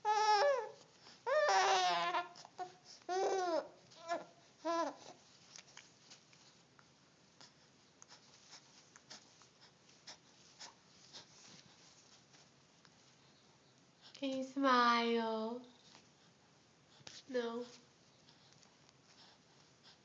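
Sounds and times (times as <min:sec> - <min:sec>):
infant babbling: 0:00.1 - 0:05.1.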